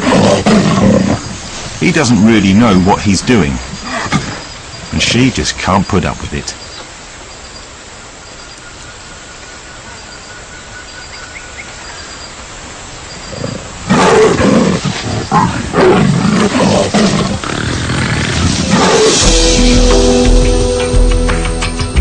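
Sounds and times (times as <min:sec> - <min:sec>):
jaguars snarling and roaring: 0:00.0 - 0:05.2, 0:13.2 - 0:19.3
faint jungle ambience: 0:00.0 - 0:21.6.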